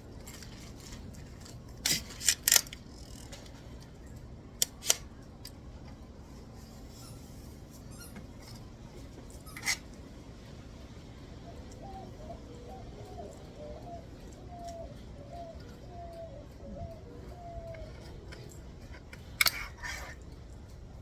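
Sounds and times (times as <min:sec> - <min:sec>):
faint bird calling: 0:11.4 - 0:18.9.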